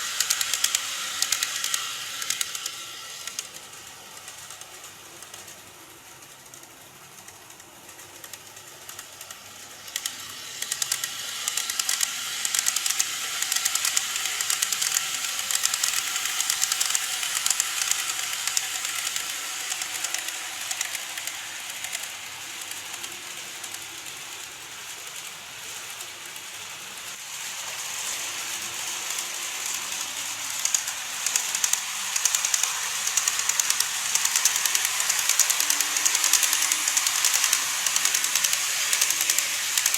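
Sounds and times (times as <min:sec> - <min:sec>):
hissing motor: 0:00.0 - 0:04.6, 0:09.9 - 0:23.2, 0:27.2 - 0:39.9
model train wheels clicking: 0:00.0 - 0:39.9.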